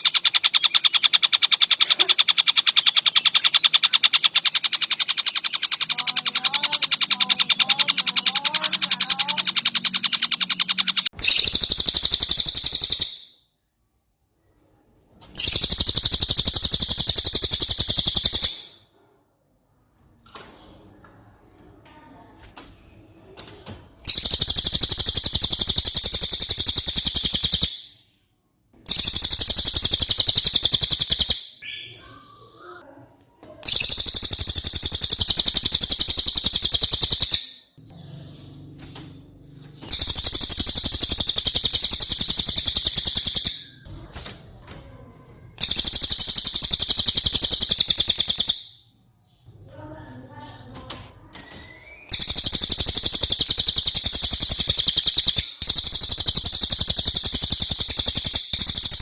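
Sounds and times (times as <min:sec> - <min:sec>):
songbird high-pitched trill: 0:03.4 - 0:13.4, 0:15.4 - 0:18.8, 0:24.1 - 0:28.0, 0:28.9 - 0:31.9, 0:33.7 - 0:38.8, 0:39.9 - 0:43.8, 0:45.6 - 0:48.8, 0:51.6 - 0:59.0.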